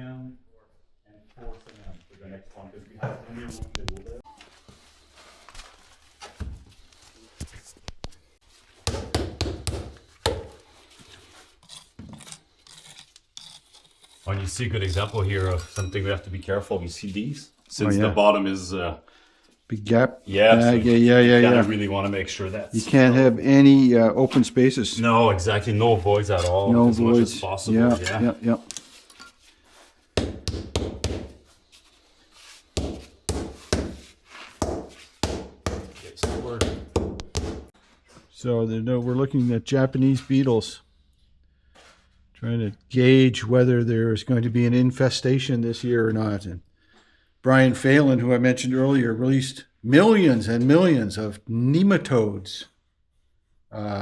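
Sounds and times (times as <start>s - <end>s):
tools knocking on stone: 8.9s - 10.6s
mallet knocking stone: 30.2s - 31.4s, 34.6s - 37.7s.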